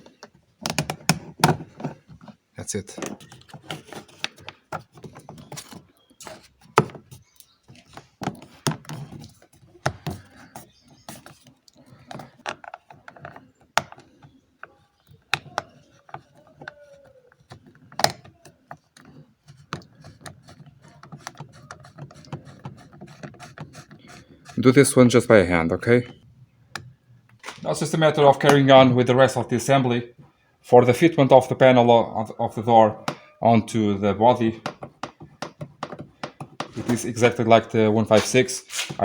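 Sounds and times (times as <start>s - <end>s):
tools clicking and knocking: 0.0s - 24.6s, 34.6s - 37.4s.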